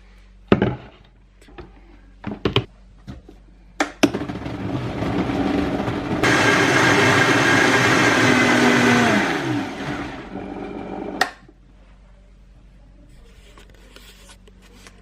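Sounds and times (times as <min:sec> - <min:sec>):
blender motor winding down: 0:04.1 - 0:11.2.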